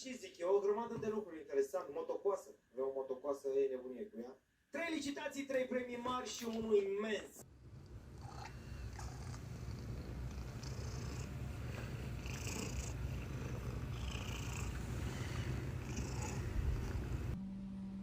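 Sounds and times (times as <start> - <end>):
steady low hum: 7.4 - 18.0
cat purring: 7.6 - 17.4.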